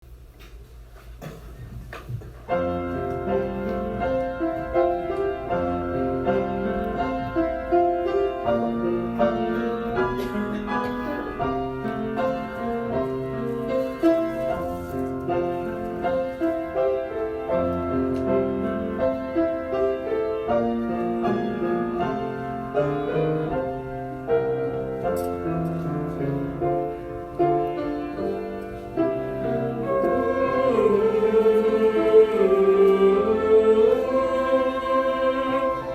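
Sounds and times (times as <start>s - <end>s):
church orchestra with piano: 0.0s - 35.9s.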